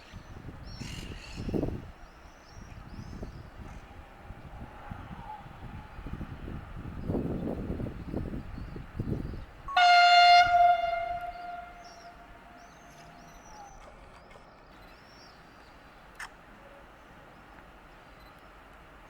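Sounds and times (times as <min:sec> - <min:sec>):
faint bird chirps: 0:08.0 - 0:13.8
low rumbling: 0:08.8 - 0:13.2
train horn blast: 0:09.5 - 0:13.6.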